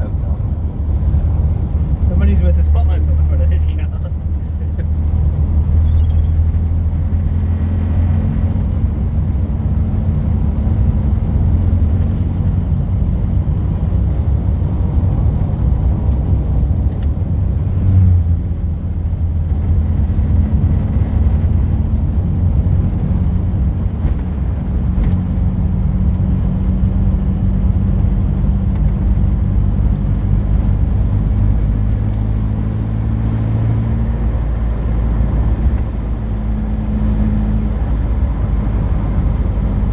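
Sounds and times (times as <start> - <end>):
car engine from inside cabin: 0.0 - 39.9.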